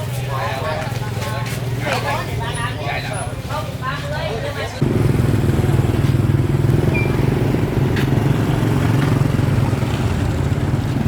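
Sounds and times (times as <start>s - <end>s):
small engine puttering: 4.8s - 11.0s.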